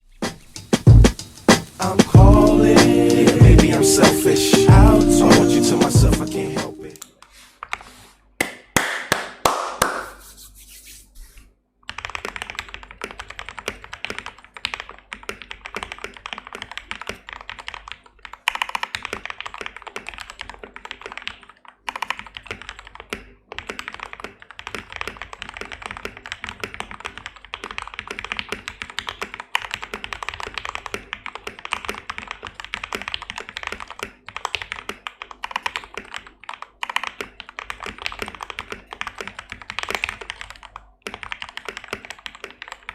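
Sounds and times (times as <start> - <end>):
fast mechanical keyboard typing: 11.8 - 42.9.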